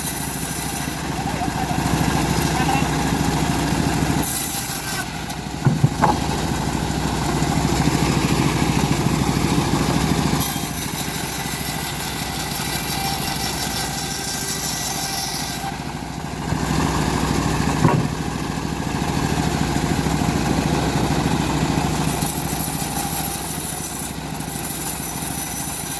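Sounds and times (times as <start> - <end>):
sawmill engine running: 0.0 - 25.9
sharp knocks: 5.6 - 6.5, 17.7 - 18.3.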